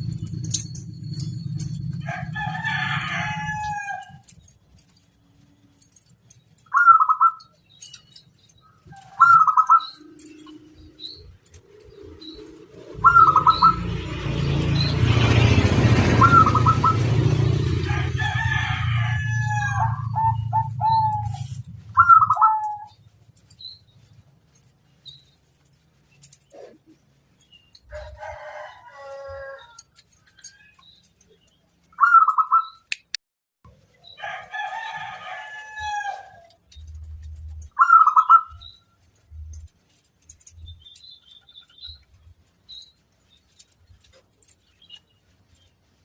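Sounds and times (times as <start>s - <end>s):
low rumble with hiss: 0.0s - 6.4s, 10.3s - 27.2s
dove calling: 0.0s - 27.0s, 27.7s - 32.9s, 34.0s - 45.7s.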